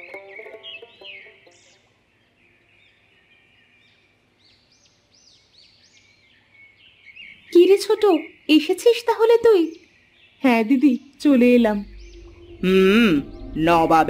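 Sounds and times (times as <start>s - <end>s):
plucked-string music: 0.0s - 1.9s
small birds chirping: 0.0s - 14.0s.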